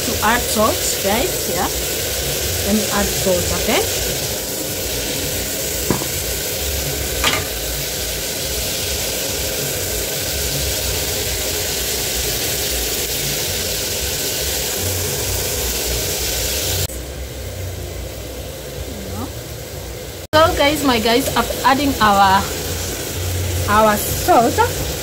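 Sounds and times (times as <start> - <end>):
vegetables sizzling in oil: 0.0 - 25.0.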